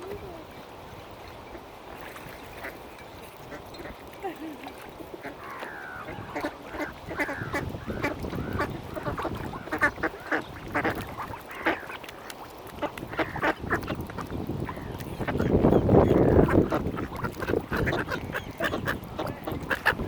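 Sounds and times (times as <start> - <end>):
ducks quacking: 5.1 - 12.1, 12.7 - 20.0.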